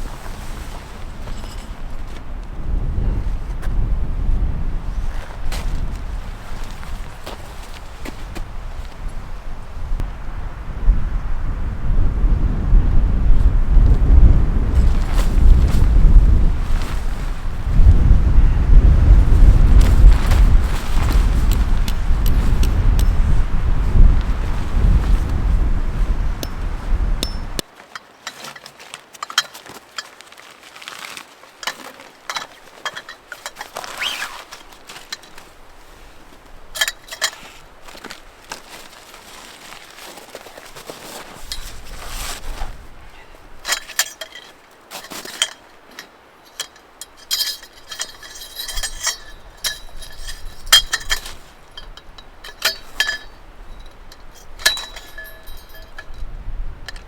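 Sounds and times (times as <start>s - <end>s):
ringing clinks: 27.2s - 28.7s, 36.7s - 37.5s, 43.6s - 57.0s.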